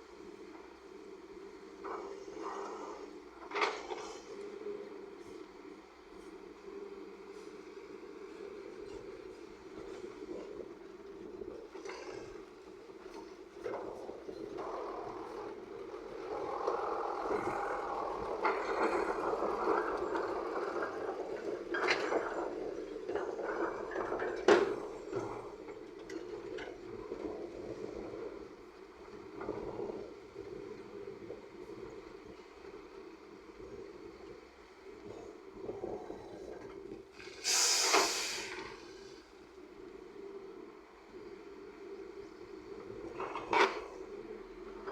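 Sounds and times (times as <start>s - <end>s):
heavy machinery engines running: 0.0s - 44.9s
heavy machinery engine under load: 8.8s - 29.8s
loud hiss: 37.4s - 39.0s.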